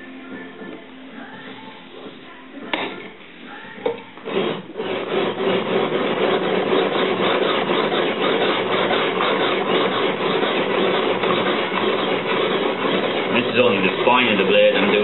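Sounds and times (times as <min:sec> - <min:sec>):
stone scraping along blade: 0:03.8 - 0:15.0.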